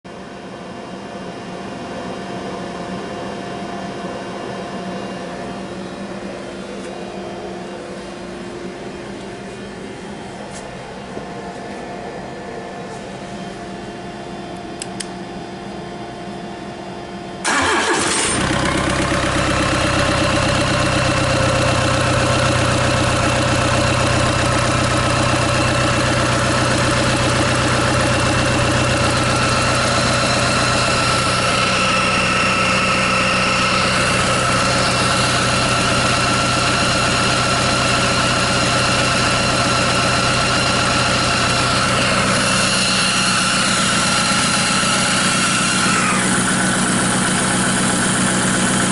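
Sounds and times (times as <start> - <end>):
diesel engine cranking and idling: 17.4 - 48.9.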